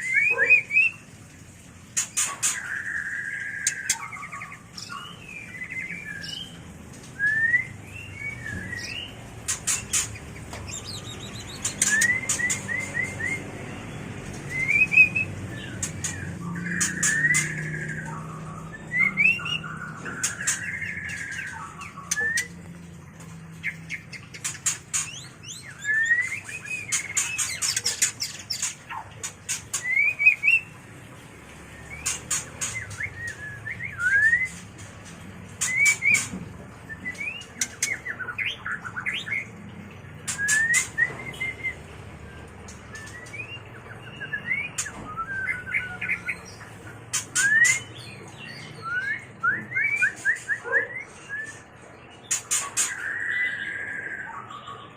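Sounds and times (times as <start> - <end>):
bird singing whistled phrases: 7.2 - 9.2, 10.7 - 13.5, 14.4 - 22.6, 25.0 - 27.9, 31.8 - 34.6, 40.3 - 41.9, 42.9 - 46.5, 47.4 - 51.6.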